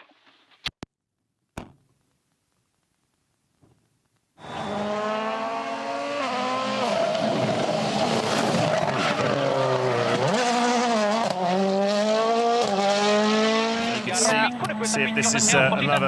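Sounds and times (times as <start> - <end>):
rally car engine revving: 4.4 - 16.0.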